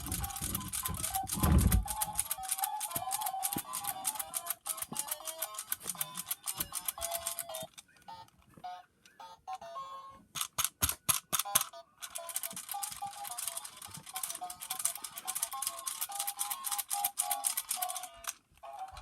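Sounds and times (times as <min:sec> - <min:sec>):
rapid clicking: 0:00.0 - 0:07.6, 0:12.1 - 0:18.4.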